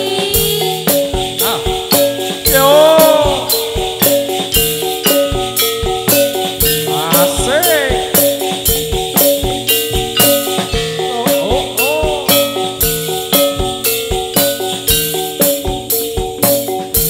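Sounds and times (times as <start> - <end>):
gliding melodic voice: 0.0 - 4.4, 10.8 - 12.8
drum beats: 0.0 - 17.0
metallophone melody: 0.0 - 17.0.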